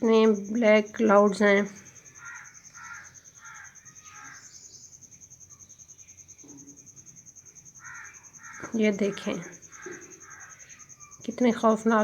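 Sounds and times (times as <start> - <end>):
crows cawing: 2.0 - 4.8, 7.8 - 11.2.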